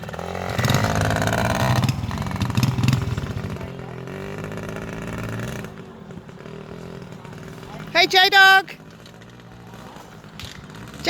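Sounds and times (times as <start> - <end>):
small motorbike engine revving: 0.0 - 11.0.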